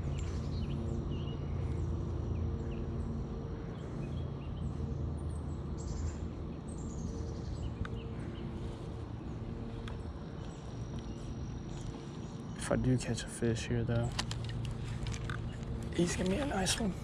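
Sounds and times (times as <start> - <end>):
birds chirping: 0.0 - 17.0
low rumble and hum: 0.0 - 17.0.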